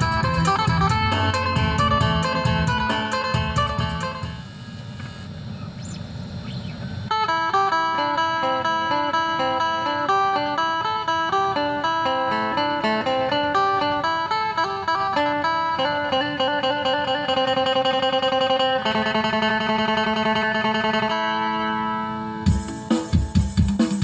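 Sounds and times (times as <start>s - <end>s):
plucked lute melody: 0.0s - 4.2s, 7.1s - 22.5s
low rumble: 0.6s - 4.2s.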